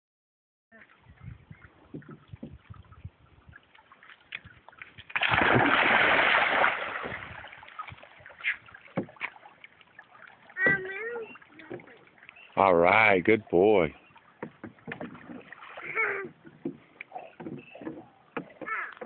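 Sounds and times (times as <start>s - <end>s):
water lapping and knocks: 0.8s - 19.0s
big water splash: 5.0s - 12.2s.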